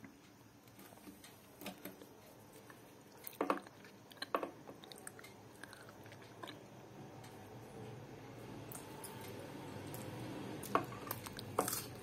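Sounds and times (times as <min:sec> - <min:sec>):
person biting and chewing food: 0:02.6 - 0:06.7, 0:11.0 - 0:12.0.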